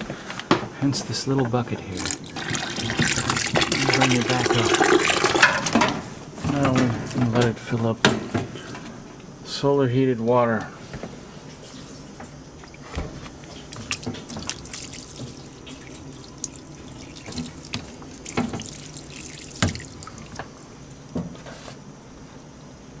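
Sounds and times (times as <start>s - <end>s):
water running from hose: 1.9s - 5.6s, 13.4s - 20.9s.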